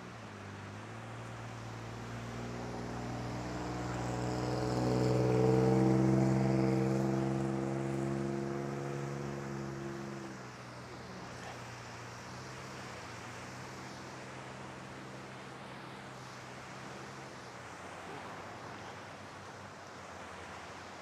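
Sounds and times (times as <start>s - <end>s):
vehicle engine passing by: 0.0s - 20.8s.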